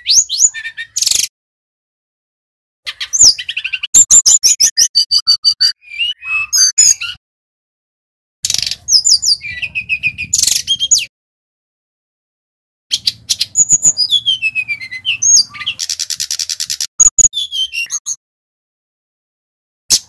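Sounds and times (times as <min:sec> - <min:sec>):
bird singing chattering notes: 0:02.9 - 0:07.2, 0:12.9 - 0:18.2.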